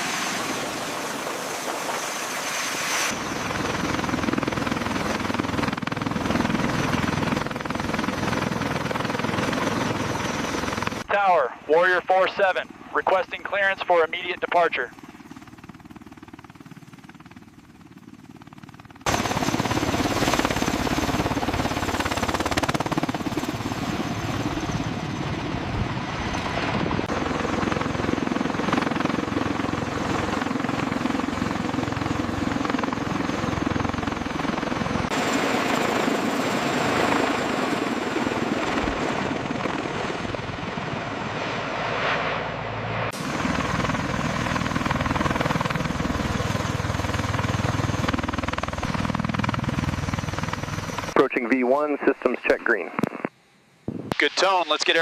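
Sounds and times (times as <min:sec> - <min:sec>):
helicopter rotor and engine: 0:00.0 - 0:55.0
low hum: 0:40.8 - 0:46.4.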